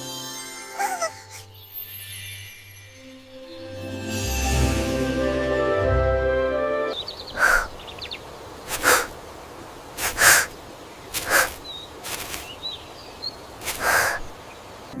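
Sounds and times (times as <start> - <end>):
faint bird chirps: 7.0 - 9.2.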